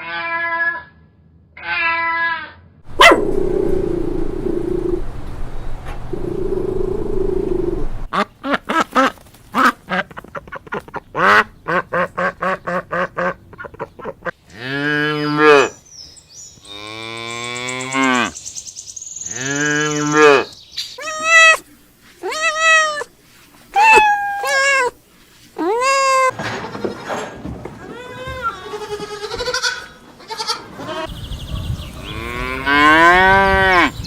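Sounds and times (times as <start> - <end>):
high-pitched bleats: 0.0 - 1.0, 1.6 - 2.6, 14.5 - 15.8, 19.3 - 20.4, 25.6 - 31.1
duck quacks: 8.1 - 14.4
cow mooing: 32.1 - 34.0.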